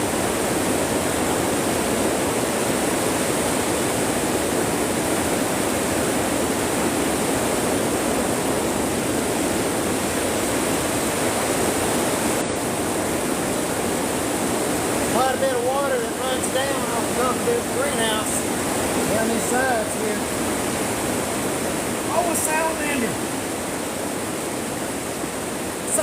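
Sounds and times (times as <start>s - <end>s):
heavy rain on plastic roof: 0.0s - 26.0s
water running off: 14.3s - 23.5s.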